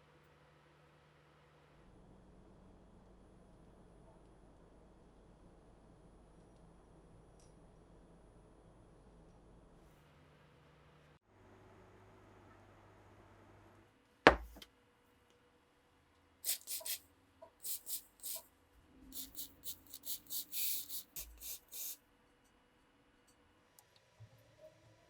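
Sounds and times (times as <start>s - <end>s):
sharp knock: 14.3s - 14.6s.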